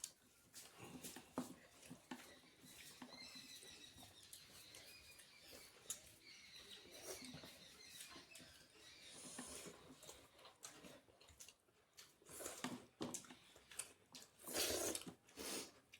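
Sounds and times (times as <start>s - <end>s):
faint high chirping: 2.1s - 9.9s
person chewing: 9.2s - 15.9s.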